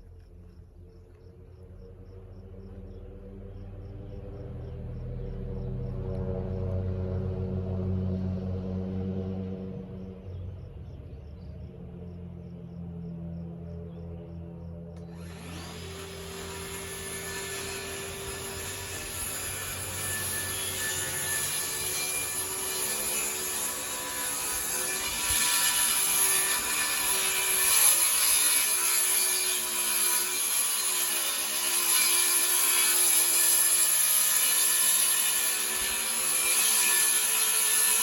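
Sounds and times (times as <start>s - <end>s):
power saw cutting wood: 15.0s - 38.0s.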